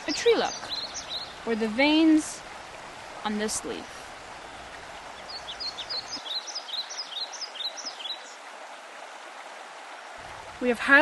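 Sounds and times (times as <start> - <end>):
songbird chirping: 0.0 - 8.5
outdoor background hiss: 0.0 - 11.0.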